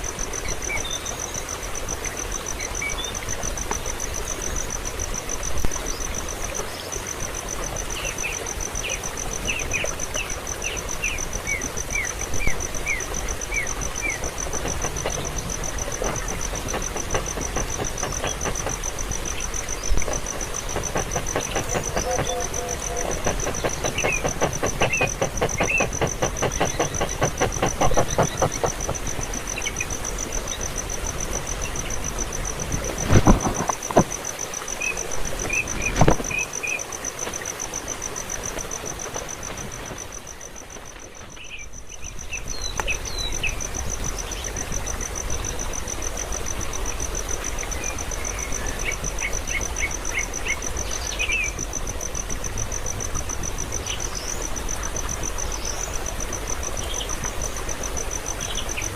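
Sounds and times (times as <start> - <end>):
noisy hiss: 0.0 - 41.3
insect trilling: 11.1 - 31.0
loud knocks: 14.3 - 29.2.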